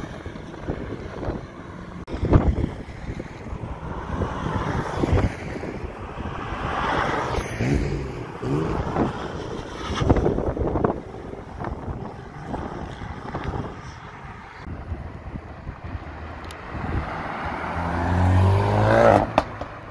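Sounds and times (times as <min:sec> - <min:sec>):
wind buffeting microphone: 0:00.0 - 0:07.3, 0:08.2 - 0:18.7
car passing: 0:01.7 - 0:19.9
car engine accelerating past: 0:16.8 - 0:19.6.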